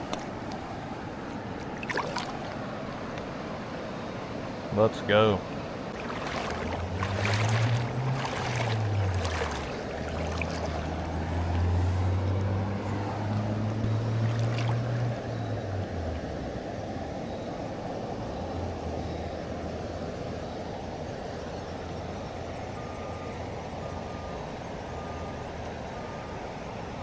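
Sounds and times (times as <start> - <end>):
river water rushing: 0.0 - 17.3
low hum: 5.9 - 16.7.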